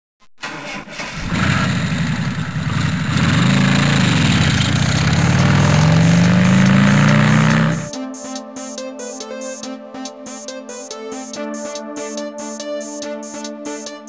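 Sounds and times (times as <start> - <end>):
car engine revving: 0.4 - 7.9.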